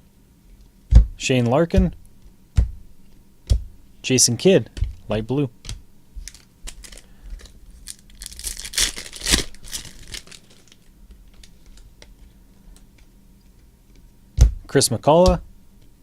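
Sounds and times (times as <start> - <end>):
wrapper tearing and crinkling: 6.2 - 11.5.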